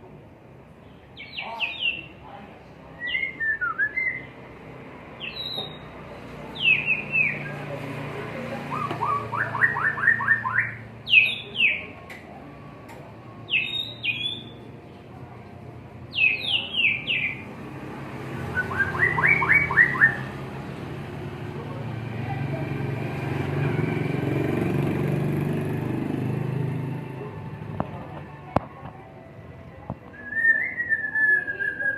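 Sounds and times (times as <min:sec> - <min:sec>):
bird singing whistled phrases: 0:03.0 - 0:04.4, 0:05.2 - 0:05.9, 0:06.6 - 0:07.5, 0:08.7 - 0:11.9, 0:13.5 - 0:14.6, 0:16.1 - 0:17.4, 0:18.5 - 0:20.3, 0:30.1 - 0:31.9.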